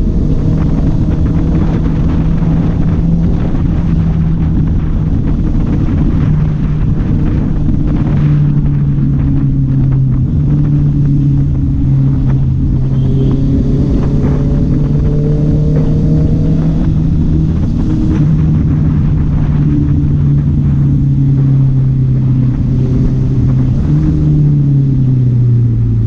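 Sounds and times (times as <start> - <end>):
motorcycle engine and exhaust: 0.0 - 26.0.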